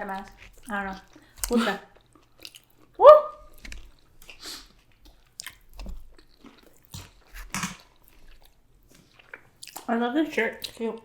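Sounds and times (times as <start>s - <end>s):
chewing and crunching food: 0.0s - 11.0s
person exclaiming woo: 3.0s - 3.5s
wet mouth clicks: 3.5s - 7.6s.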